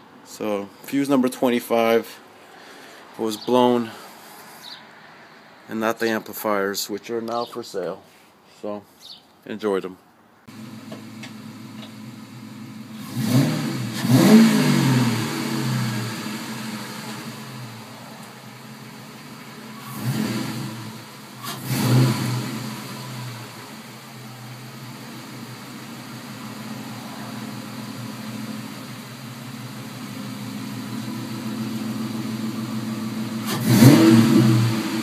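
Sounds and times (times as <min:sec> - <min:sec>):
car engine revving: 0:10.5 - 0:35.0.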